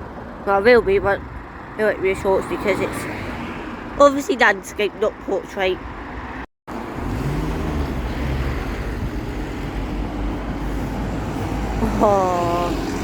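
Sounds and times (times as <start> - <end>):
road traffic noise: 0.0 - 13.0
bus engine running: 5.6 - 13.0.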